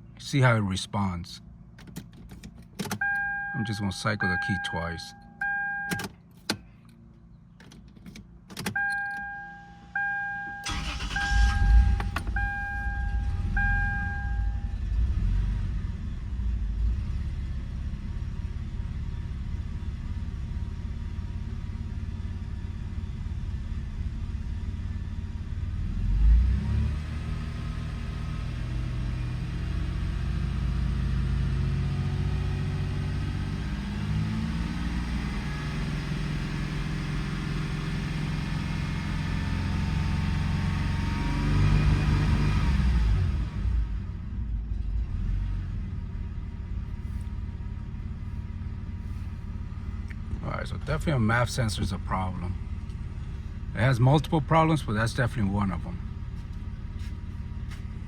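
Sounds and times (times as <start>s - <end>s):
car engine cranking and idling: 0.0s - 58.0s
ignition key clicks: 1.8s - 3.4s, 5.4s - 6.6s, 7.6s - 9.4s
dashboard chime beeping: 3.0s - 6.1s, 8.8s - 10.7s, 11.6s - 14.7s.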